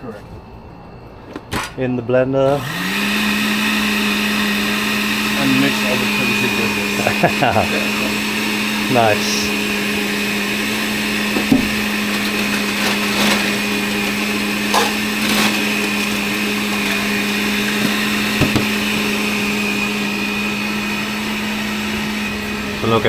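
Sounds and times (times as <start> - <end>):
blender running: 2.5 - 23.0
blender jar knocks: 11.3 - 13.4, 14.2 - 19.1.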